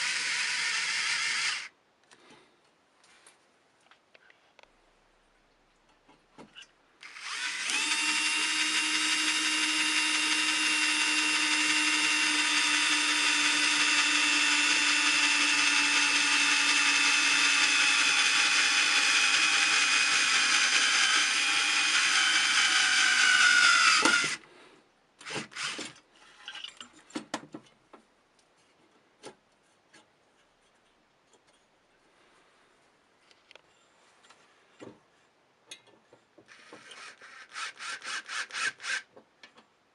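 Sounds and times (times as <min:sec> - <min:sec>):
power drill running: 0:00.0 - 0:01.7, 0:07.0 - 0:24.4, 0:25.2 - 0:25.9, 0:36.5 - 0:39.1.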